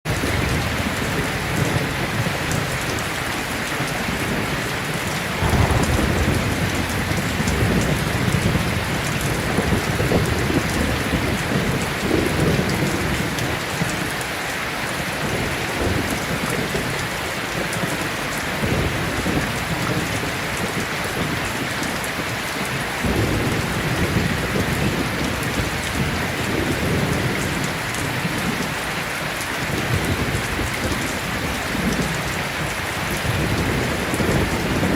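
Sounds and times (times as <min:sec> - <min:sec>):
heavy rain: 0:00.1 - 0:34.9
thunder rumbling: 0:03.9 - 0:13.3, 0:23.1 - 0:28.7.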